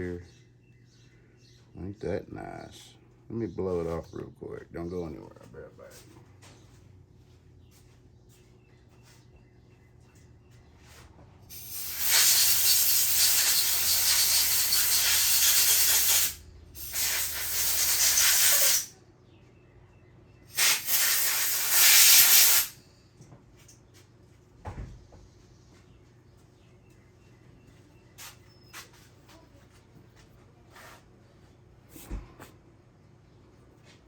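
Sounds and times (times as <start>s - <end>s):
compressed air blasts hissing: 11.5s - 18.9s, 20.5s - 22.8s.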